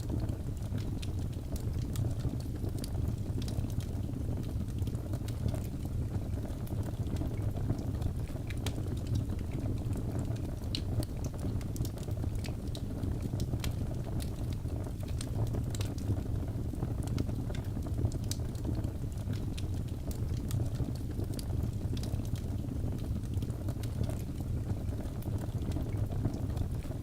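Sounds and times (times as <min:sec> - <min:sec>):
fire crackling and popping: 0:00.0 - 0:27.0
low rumble of flame: 0:00.0 - 0:27.0.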